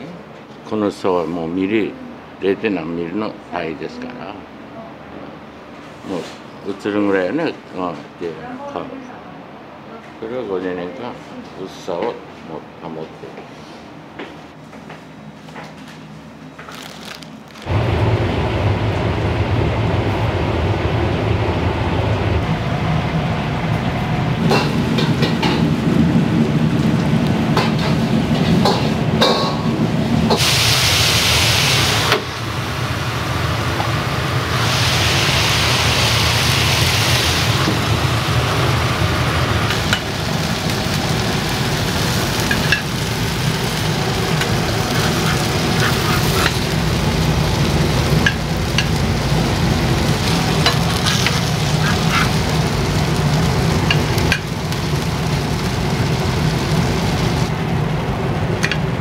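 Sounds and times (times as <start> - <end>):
loud sizzling hiss: 17.0 - 59.0
low roar from range: 17.7 - 27.4, 43.7 - 53.9.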